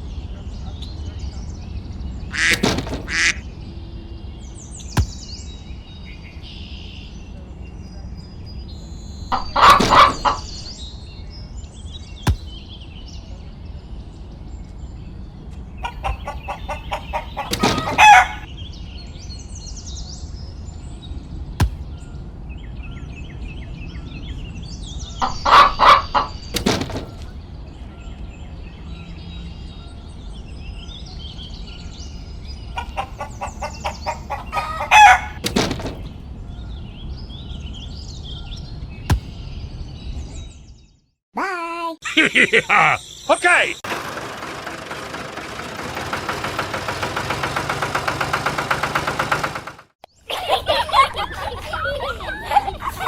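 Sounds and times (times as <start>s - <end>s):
chicken clucking and squawking: 9.4s - 10.5s, 15.8s - 18.5s, 25.2s - 26.4s, 32.8s - 35.4s
faint bird chirps: 42.4s - 43.8s.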